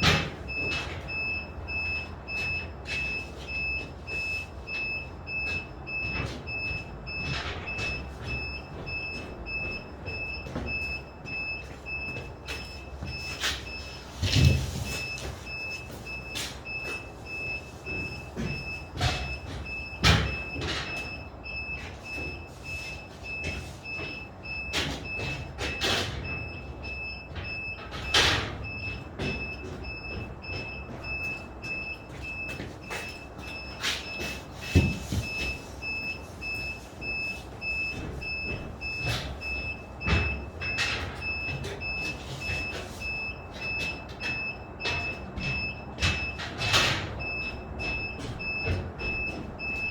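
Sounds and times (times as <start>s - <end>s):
high electronic warning beep: 0.0s - 49.9s.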